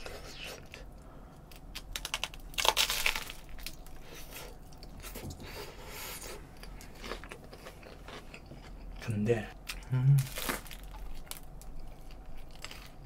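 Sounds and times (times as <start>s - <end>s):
crunchy bread chewing: 1.4s - 5.6s, 6.2s - 9.1s, 9.7s - 13.0s.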